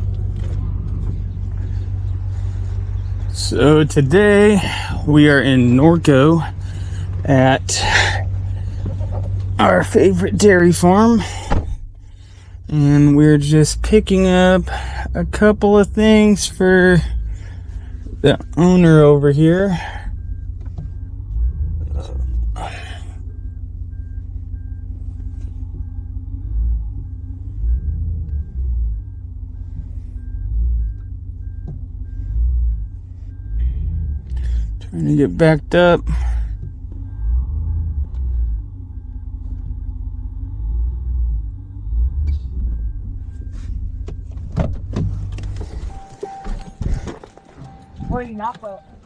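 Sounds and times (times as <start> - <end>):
truck engine running: 0.0 - 49.0
backup alarm beeping: 16.0 - 40.6, 41.4 - 49.0.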